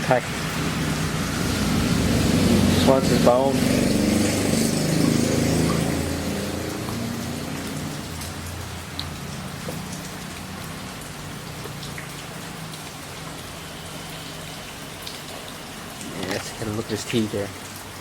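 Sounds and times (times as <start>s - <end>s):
steady rain falling: 0.0s - 18.0s
drops ticking on a surface: 6.7s - 10.5s.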